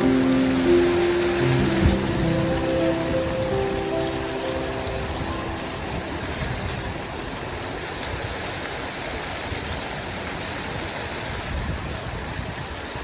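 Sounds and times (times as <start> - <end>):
soft music notes: 0.0 - 7.6
rain falling: 0.0 - 13.0.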